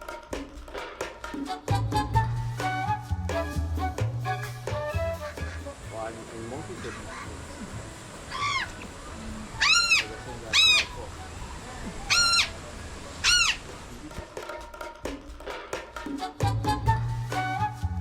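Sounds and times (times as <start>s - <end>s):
bird calling: 4.7s - 14.1s.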